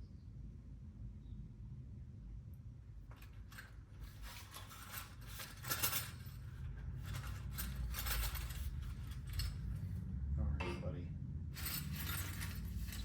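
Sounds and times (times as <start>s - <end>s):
metal hand tools clinking: 11.6s - 13.0s.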